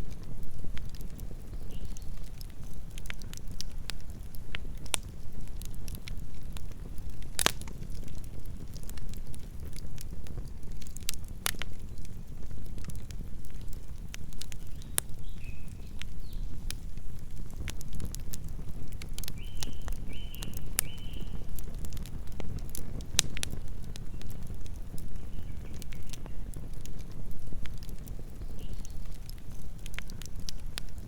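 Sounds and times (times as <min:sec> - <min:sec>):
campfire crackling and popping: 0:00.0 - 0:31.0
low rumble of flames: 0:00.0 - 0:31.0.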